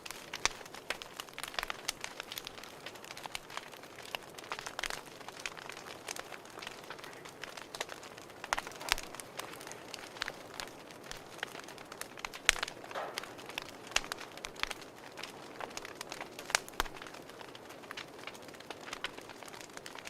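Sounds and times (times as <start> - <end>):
fire crackling: 0.0 - 20.0.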